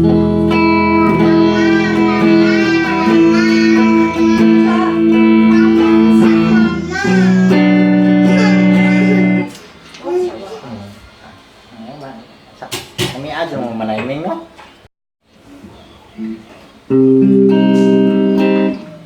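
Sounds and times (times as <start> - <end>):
electric guitar chords: 0.0 - 9.6, 16.9 - 19.0.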